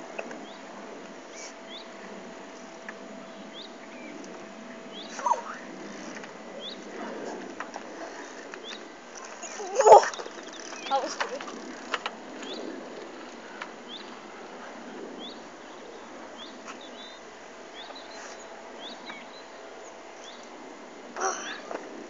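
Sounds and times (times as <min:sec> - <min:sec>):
steady outdoor hiss: 0:00.0 - 0:22.0
small birds chirping: 0:00.3 - 0:02.0, 0:03.1 - 0:07.0, 0:08.5 - 0:12.8, 0:13.8 - 0:14.2, 0:15.1 - 0:20.6.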